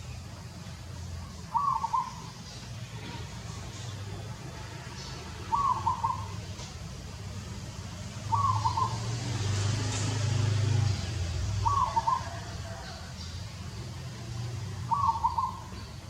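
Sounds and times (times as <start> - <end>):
bird calling: 1.2 - 4.2, 5.0 - 6.7, 8.2 - 9.4, 11.6 - 13.4, 14.4 - 16.0.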